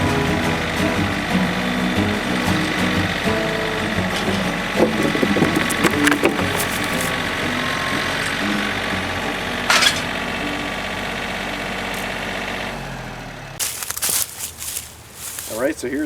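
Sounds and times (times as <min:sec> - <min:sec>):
engine idling: 0:00.0 - 0:16.0
clattering and rustling: 0:00.6 - 0:10.3.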